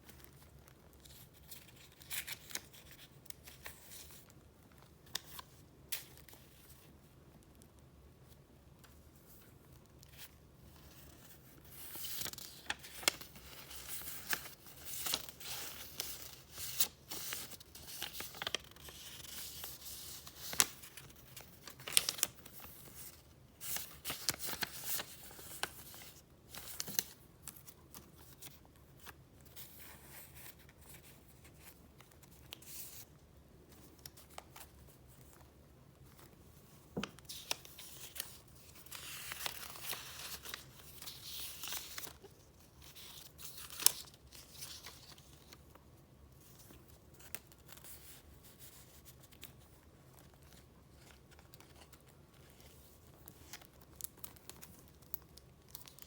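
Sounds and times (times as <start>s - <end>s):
paper and plastic rustling: 8.9s - 33.1s, 33.7s - 56.0s.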